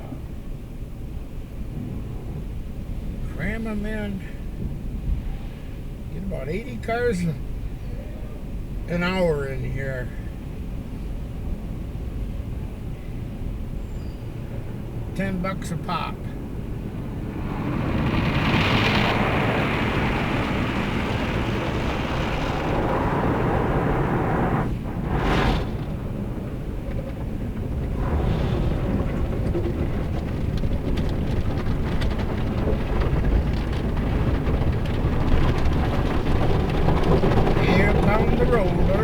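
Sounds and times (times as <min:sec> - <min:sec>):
low rumble: 0:00.0 - 0:39.0
car wash water jets spraying: 0:16.4 - 0:39.0.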